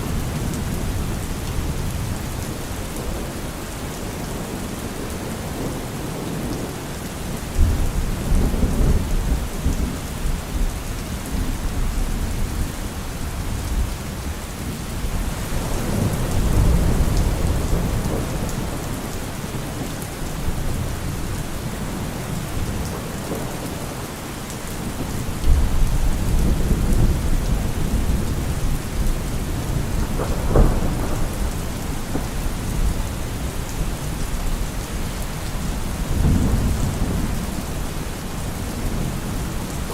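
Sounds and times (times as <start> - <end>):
steady rain: 0.0 - 39.9
rolling thunder: 24.8 - 39.9
sharp thunderclap: 29.3 - 33.5.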